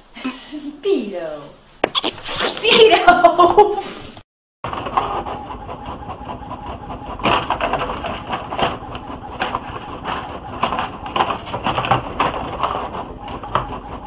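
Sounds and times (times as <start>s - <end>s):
printer running: 4.7s - 14.0s.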